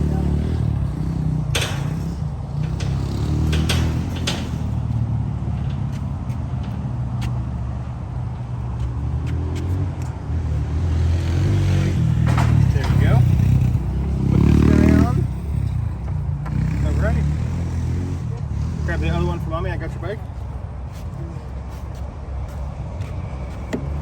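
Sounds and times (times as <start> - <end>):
motor vehicle drone: 0.0 - 24.0
sharp clicks and knocks: 1.4 - 10.2, 12.2 - 13.2.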